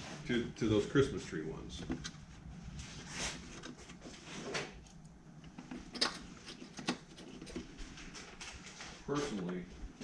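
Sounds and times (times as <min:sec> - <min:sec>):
scraping and rustling of parts: 0:01.7 - 0:09.9.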